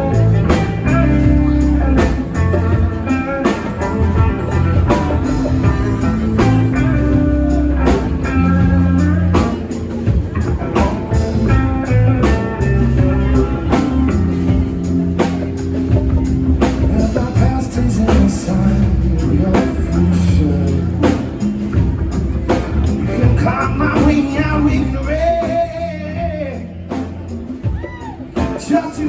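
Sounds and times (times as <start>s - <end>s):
rock band playing live: 0.0s - 29.0s
person singing: 16.6s - 21.3s, 22.9s - 27.0s.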